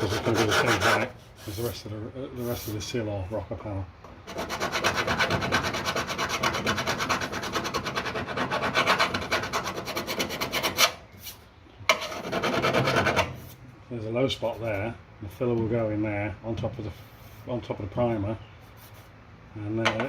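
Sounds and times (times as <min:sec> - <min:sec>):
file strokes on steel: 0:00.0 - 0:02.8.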